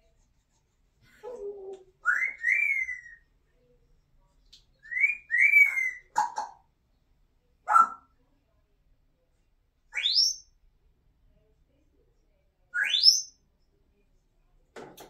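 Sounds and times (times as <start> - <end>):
parrot whistling: 2.0 - 3.2.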